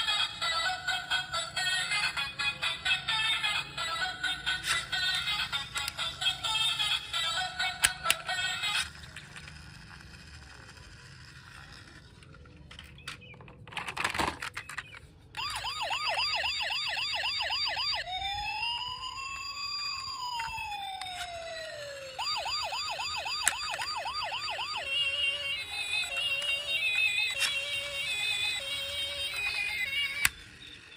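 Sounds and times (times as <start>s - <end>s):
electronic toy siren warbling: 0.0s - 11.8s, 15.4s - 30.9s.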